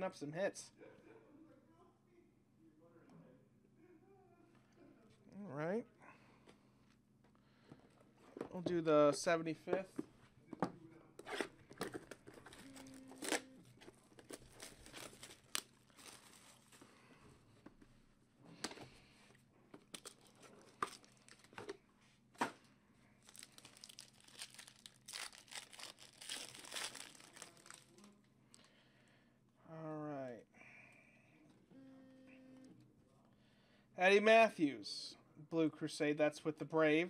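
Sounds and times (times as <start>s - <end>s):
packaging torn and crinkled: 14.2s - 16.8s, 20.0s - 21.5s, 23.2s - 28.1s.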